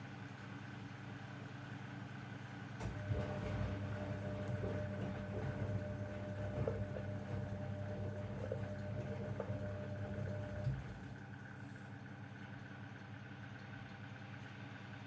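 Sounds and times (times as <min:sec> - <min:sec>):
washing machine motor hum: 0:02.8 - 0:11.7.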